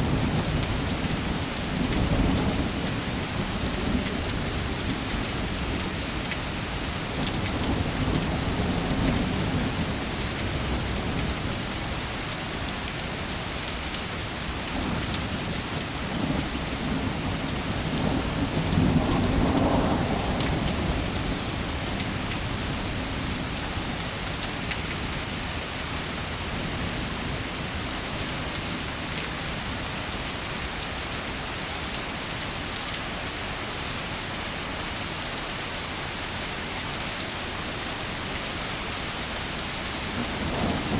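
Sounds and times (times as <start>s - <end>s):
heavy rain falling: 0.0s - 40.9s
distant thunder rolling: 16.0s - 23.0s, 39.8s - 40.9s.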